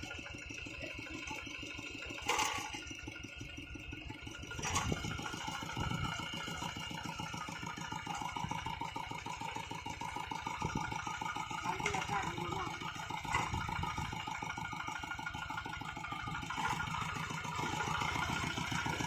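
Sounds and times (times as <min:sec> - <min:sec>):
diesel engine chugging: 0:00.0 - 0:19.0.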